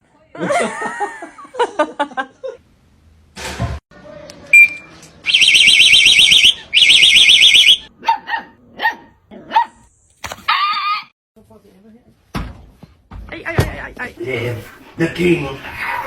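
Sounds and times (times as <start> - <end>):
warbling electronic alarm: 5.3 - 7.9
dog barking: 8.0 - 9.8.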